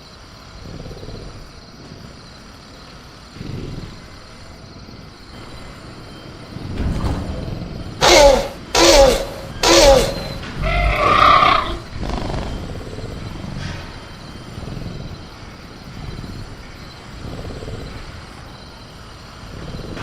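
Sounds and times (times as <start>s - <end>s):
dinosaur growling roar: 3.3s - 4.3s, 8.0s - 18.4s.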